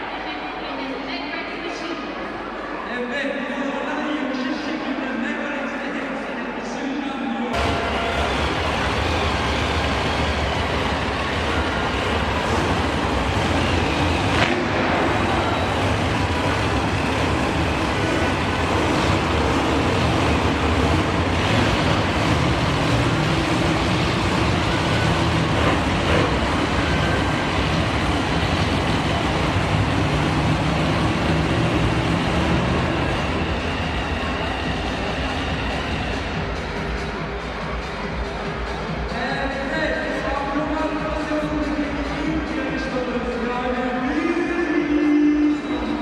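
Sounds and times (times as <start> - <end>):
monster truck engine droning: 7.6 - 39.1.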